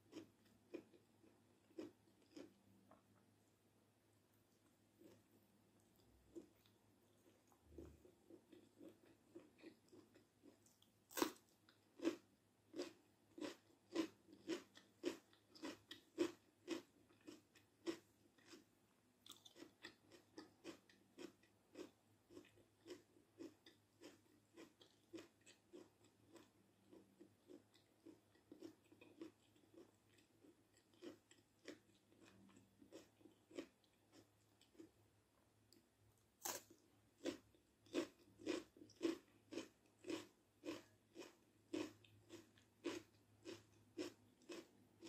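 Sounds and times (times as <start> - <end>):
crunching raw bell pepper: 7.4 - 27.6, 36.4 - 44.7.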